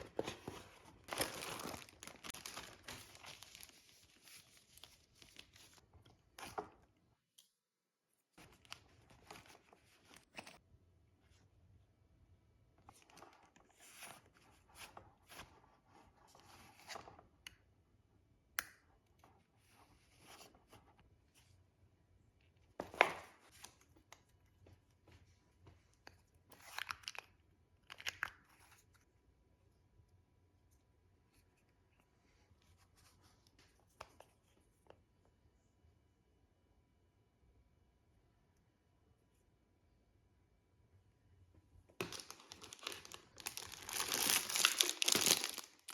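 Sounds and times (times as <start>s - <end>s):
packaging rustling and tearing: 0.0s - 5.8s, 42.0s - 45.9s.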